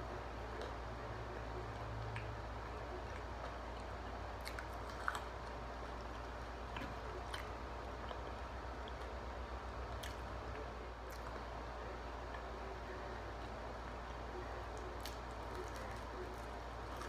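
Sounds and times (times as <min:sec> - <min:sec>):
steady low hum: 0:00.0 - 0:17.0
person chewing fried chicken: 0:01.8 - 0:11.5, 0:14.7 - 0:17.0.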